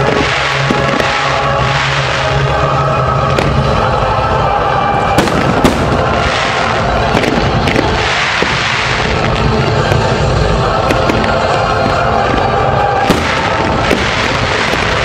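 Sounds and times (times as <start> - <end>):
loud firework bangs: 0.0 - 3.8, 5.1 - 15.0
fireworks barrage: 0.0 - 15.0.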